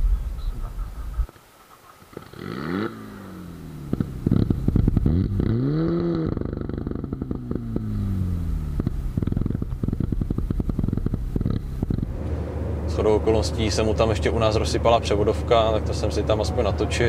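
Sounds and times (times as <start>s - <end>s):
car engine revving hard: 2.4s - 12.9s
dense crackle: 8.7s - 12.4s.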